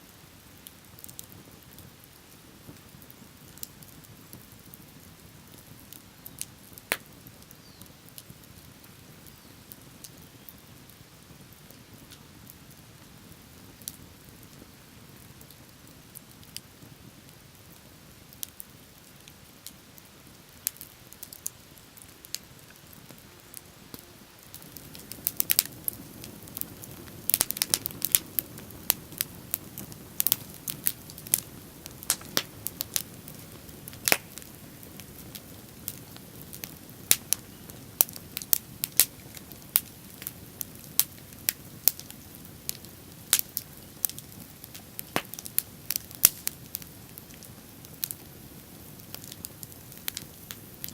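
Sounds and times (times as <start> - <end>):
bonfire crackling and popping: 0.0 - 50.9
low rushing of flame: 24.4 - 50.9.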